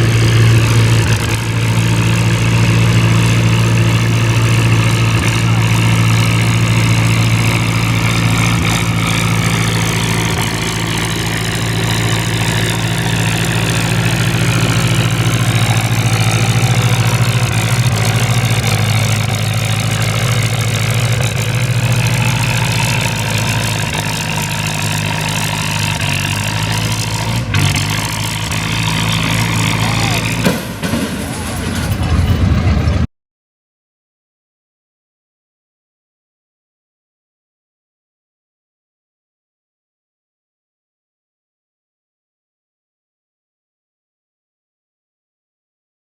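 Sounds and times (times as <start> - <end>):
tractor engine running: 0.0 - 33.1.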